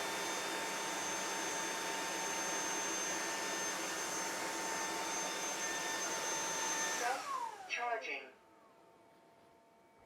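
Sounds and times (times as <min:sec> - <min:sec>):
vacuum motor whir: 0:00.0 - 0:07.8.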